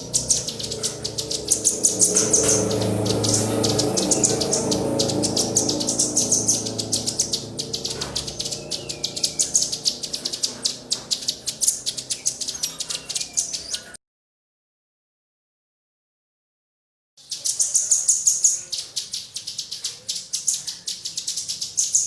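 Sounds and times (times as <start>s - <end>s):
low steady hum: 0.0s - 12.5s
songbirds chirping: 0.0s - 14.0s, 17.2s - 22.0s.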